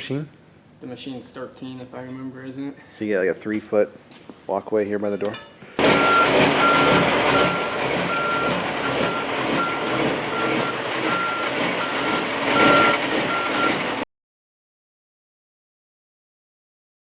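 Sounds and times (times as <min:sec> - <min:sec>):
steady engine noise: 0:05.8 - 0:14.0
vehicle backup alarm beeping: 0:05.8 - 0:14.0.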